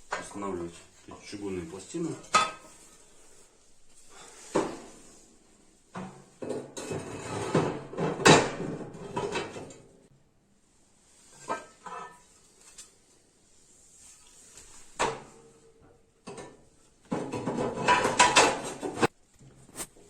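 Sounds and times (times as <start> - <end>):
stove plates clanking: 16.3 - 19.1.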